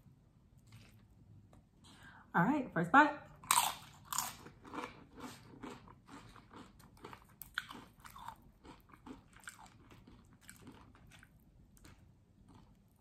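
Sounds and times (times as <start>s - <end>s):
crunchy chewing: 0.6s - 1.2s, 3.4s - 13.0s.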